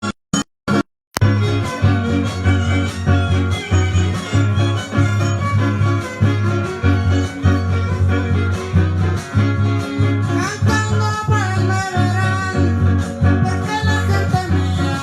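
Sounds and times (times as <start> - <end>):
melody line: 1.2 - 10.4
guitars strumming: 1.2 - 15.0.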